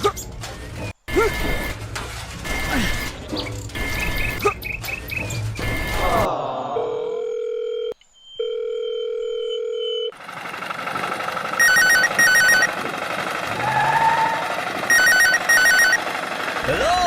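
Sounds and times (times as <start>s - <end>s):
noisy machine: 1.1s - 6.3s, 10.1s - 17.0s
warbling telephone ringtone: 7.0s - 10.2s, 11.6s - 12.8s, 14.9s - 16.0s.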